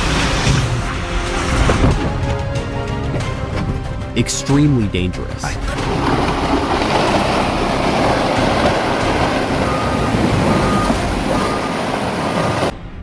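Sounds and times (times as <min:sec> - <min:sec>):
loud rushing rumble: 0:00.0 - 0:04.3, 0:05.0 - 0:13.0
short electronic beeps: 0:09.2 - 0:11.8.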